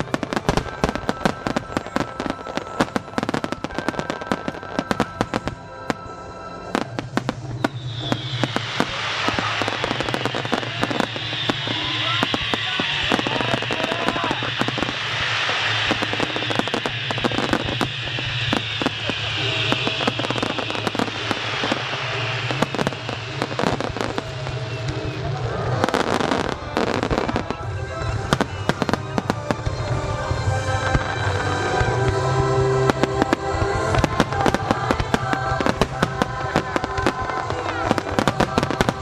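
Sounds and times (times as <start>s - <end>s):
fireworks crackling hiss: 0.0s - 39.0s
firework shells bursting: 6.8s - 25.3s.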